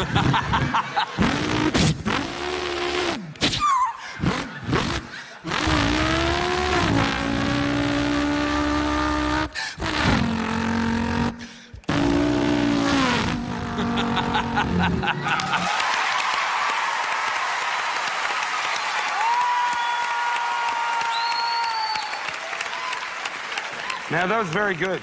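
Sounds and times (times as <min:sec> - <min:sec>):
man imitating car engine: 0:01.2 - 0:15.6.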